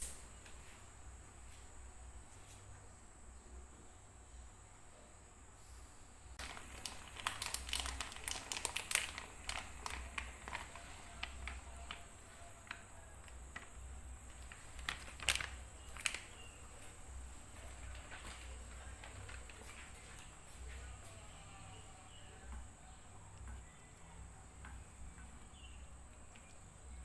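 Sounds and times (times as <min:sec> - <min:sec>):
crinkling: 0:06.4 - 0:27.0.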